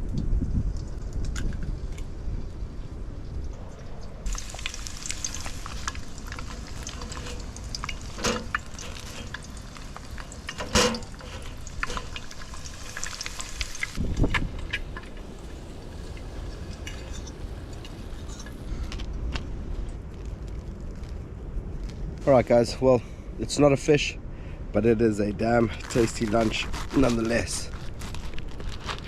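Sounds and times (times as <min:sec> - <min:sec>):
food sizzling in a frying pan: 0:04.3 - 0:14.0.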